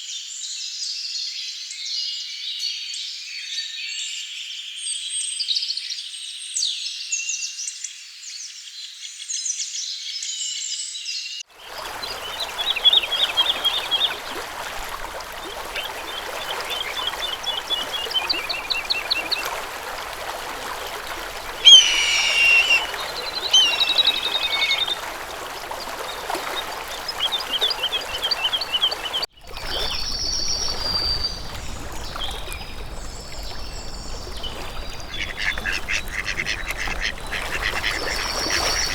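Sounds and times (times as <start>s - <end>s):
running water rushing: 11.5s - 38.9s
birds singing and calling: 11.7s - 38.9s.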